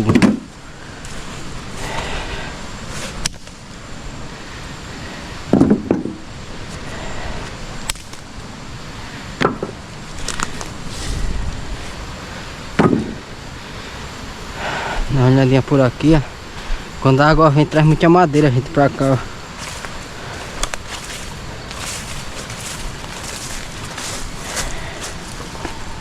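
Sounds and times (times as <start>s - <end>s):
firewood sticks knocking and dropping: 0.0s - 0.5s, 5.5s - 6.2s, 7.8s - 8.3s, 9.4s - 10.8s, 12.8s - 13.2s
steady background hiss: 0.0s - 26.0s.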